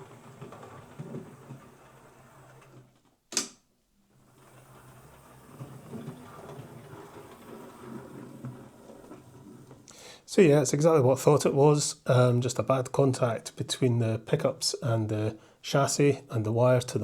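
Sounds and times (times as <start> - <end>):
sharp click: 3.3 - 3.6.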